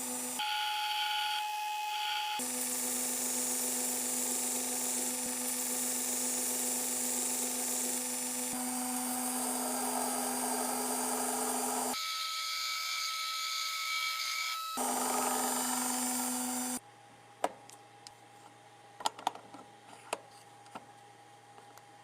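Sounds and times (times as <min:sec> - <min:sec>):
high tool whine: 0:00.0 - 0:16.8
electric power tool grinding: 0:02.4 - 0:12.0, 0:14.8 - 0:16.8.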